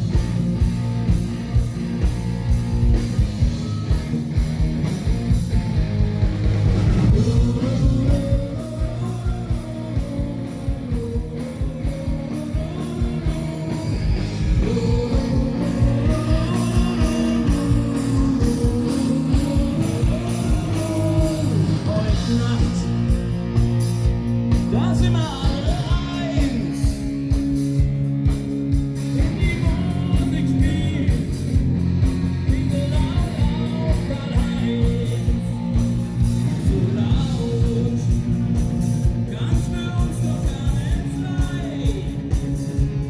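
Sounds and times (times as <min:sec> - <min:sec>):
electric guitar: 0:00.0 - 0:43.0.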